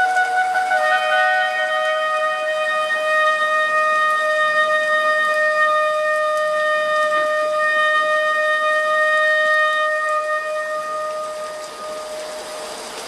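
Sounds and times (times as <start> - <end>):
ram's horn long blast: 0.0 - 12.9.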